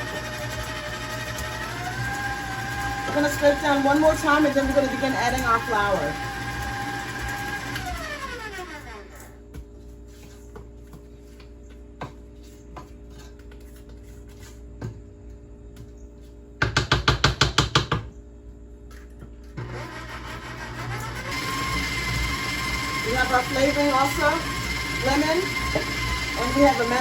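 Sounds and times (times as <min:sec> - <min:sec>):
stand mixer whine: 0:00.0 - 0:09.3, 0:19.6 - 0:27.0.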